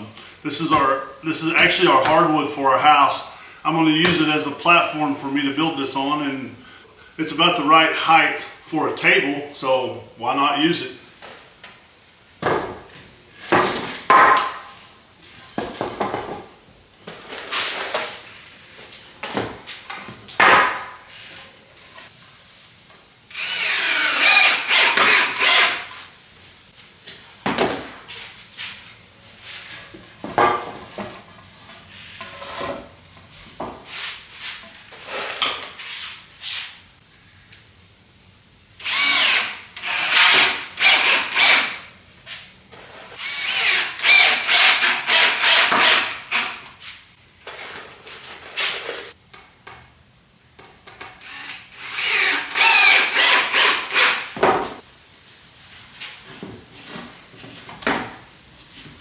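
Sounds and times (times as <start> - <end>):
power drill driving screws: 23.3 - 26.0, 38.8 - 41.8, 43.2 - 46.6, 51.2 - 54.4.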